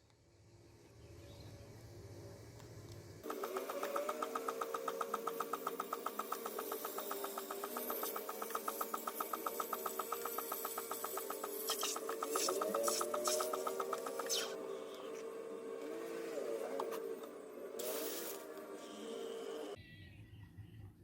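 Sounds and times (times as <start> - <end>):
machine hum: 0.0 - 21.0
machine fast even ticking: 3.2 - 14.6.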